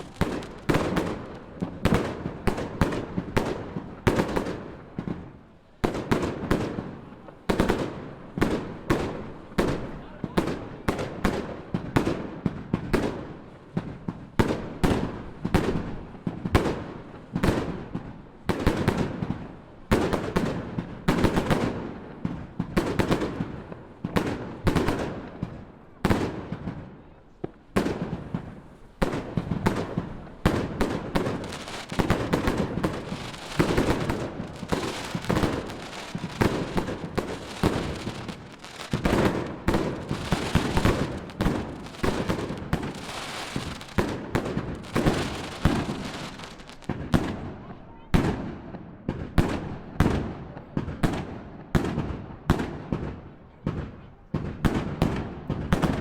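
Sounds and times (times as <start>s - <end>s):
fireworks bursting with bangs: 0.0s - 56.0s.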